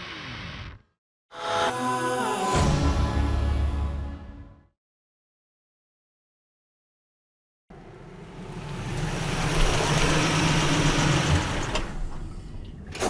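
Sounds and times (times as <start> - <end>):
car engine running: 7.7 - 12.4.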